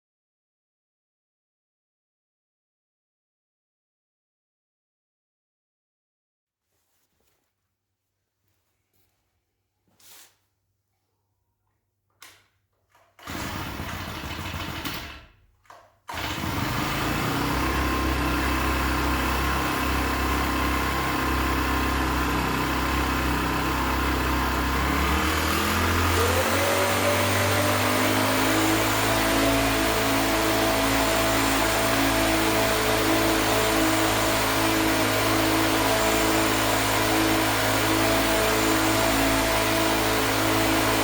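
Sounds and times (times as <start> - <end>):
model bulldozer motor humming: 16.1 - 41.0.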